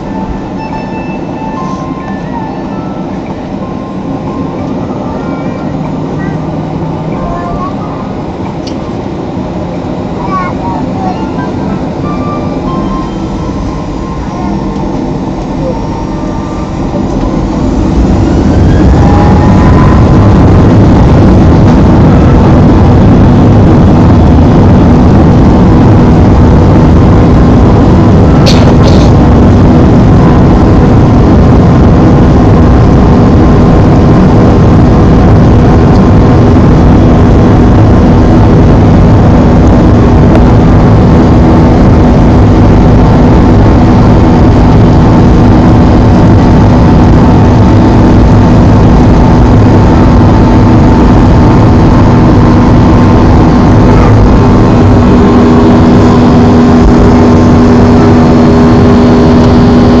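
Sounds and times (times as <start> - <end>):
jet engines droning: 0.0 - 60.0
steady tones: 0.0 - 60.0.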